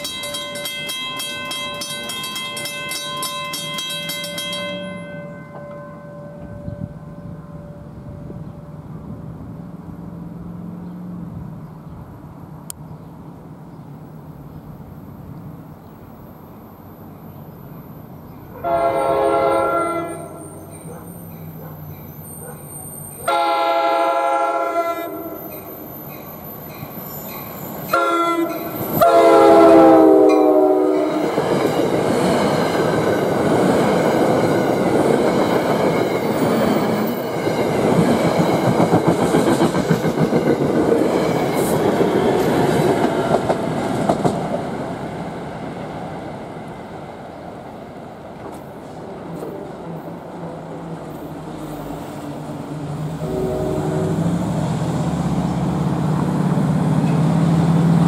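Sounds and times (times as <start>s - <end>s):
train wheels clattering on rails: 0.0s - 5.8s, 25.4s - 46.0s, 55.2s - 58.0s
train horn blasts: 18.6s - 20.7s, 23.2s - 25.5s, 27.9s - 31.4s, 53.2s - 54.4s.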